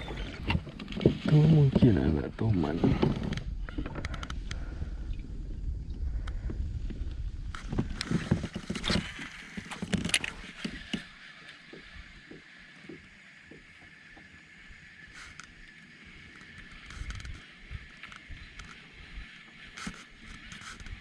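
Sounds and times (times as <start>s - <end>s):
pedal kayak moving on water: 0.0s - 21.0s
faint regular ticks: 15.0s - 21.0s.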